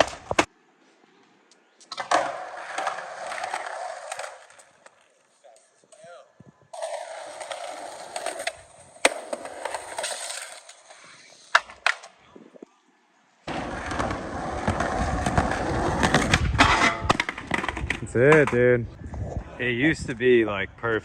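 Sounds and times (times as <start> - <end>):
skateboard wheels rolling on pavement: 0.0 - 21.0
skateboard clacks: 13.5 - 18.6.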